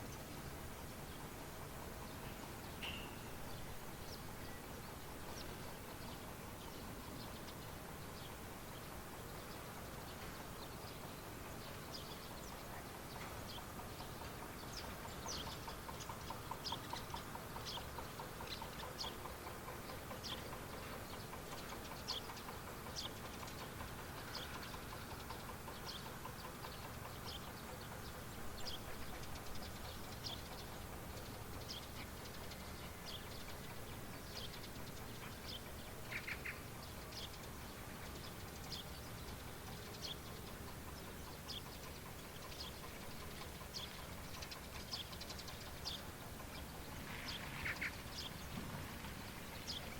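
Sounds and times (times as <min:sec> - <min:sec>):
faint outdoor background: 0:00.0 - 0:49.9
small birds chirping: 0:00.0 - 0:49.9
steady background noise: 0:00.0 - 0:49.9.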